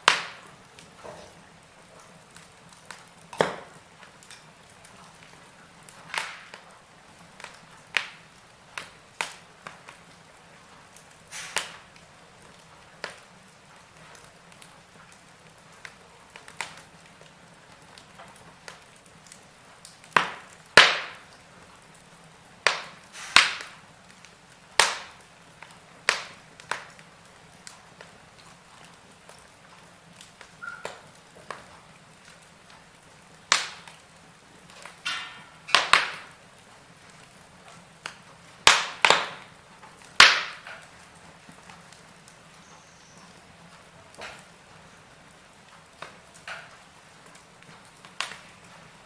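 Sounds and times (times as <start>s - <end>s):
wood fire crackling: 0.0s - 49.0s.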